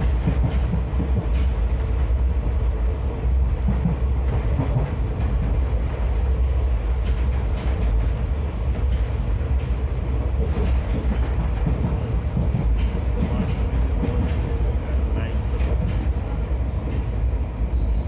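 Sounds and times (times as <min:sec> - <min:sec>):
train rumbling on rails: 0:00.0 - 0:18.0
faint rail clicks: 0:06.9 - 0:17.9.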